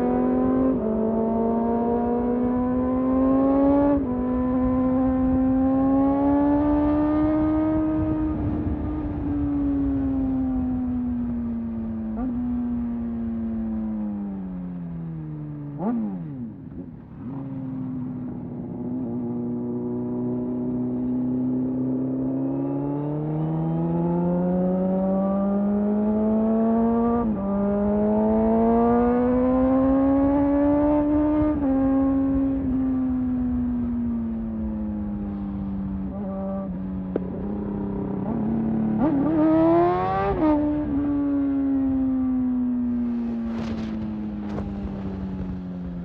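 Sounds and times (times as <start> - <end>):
motorcycle engine accelerating: 0.0 - 46.0.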